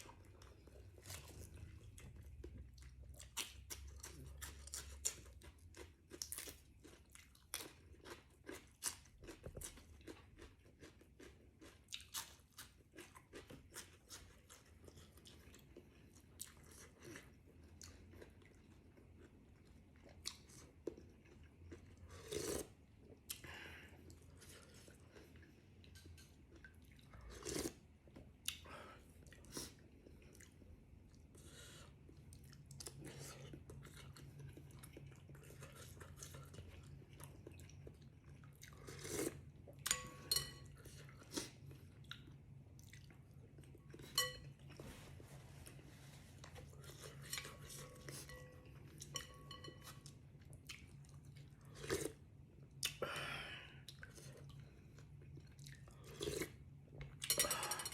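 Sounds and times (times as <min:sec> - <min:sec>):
low steady hum: 0:00.0 - 0:57.9
person chewing and crunching: 0:00.0 - 0:57.9
utensils clinking on a bowl: 0:39.9 - 0:41.0, 0:43.9 - 0:44.7, 0:46.8 - 0:50.1, 0:57.2 - 0:57.9.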